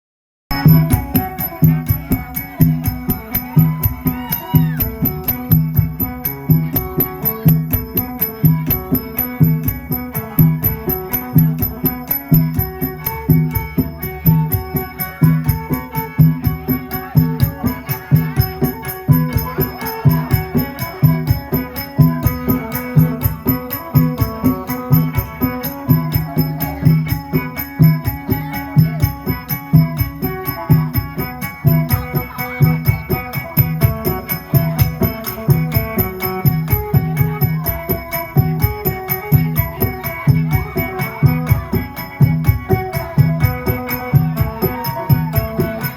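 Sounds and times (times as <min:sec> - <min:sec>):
percussive beat: 0:00.5 - 0:45.9
plucked lute folk melody: 0:04.8 - 0:45.9.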